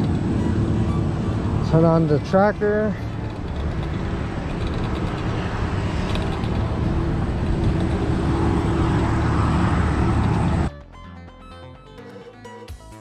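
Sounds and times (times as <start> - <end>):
road noise: 0.0 - 10.7
wind noise on microphone: 3.0 - 10.7.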